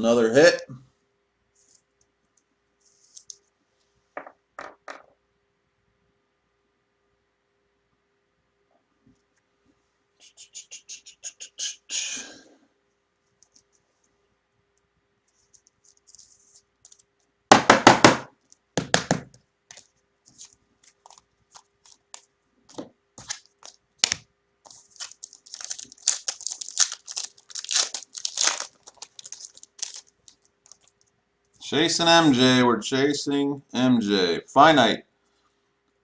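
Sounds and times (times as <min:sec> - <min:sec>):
cards clicking and rustling: 0:15.3 - 0:17.3, 0:18.5 - 0:31.1
card pack wrapper tearing: 0:19.7 - 0:31.1.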